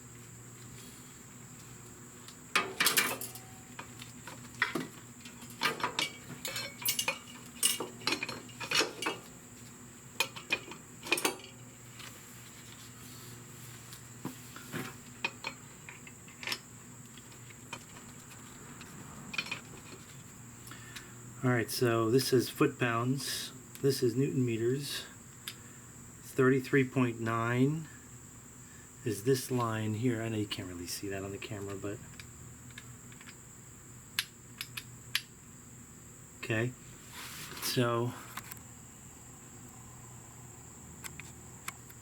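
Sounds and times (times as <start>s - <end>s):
metal tools clinking: 2.6s - 3.8s, 4.6s - 9.3s, 10.2s - 11.6s.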